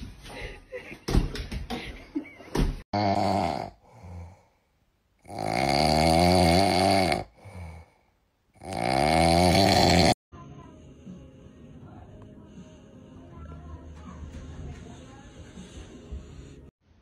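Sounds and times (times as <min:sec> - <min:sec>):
pet snoring loudly: 0:03.0 - 0:04.4, 0:05.2 - 0:07.9, 0:08.6 - 0:10.2.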